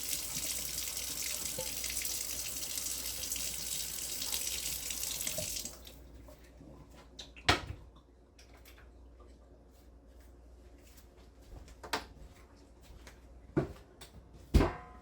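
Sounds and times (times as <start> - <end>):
water running: 0.0 - 6.2.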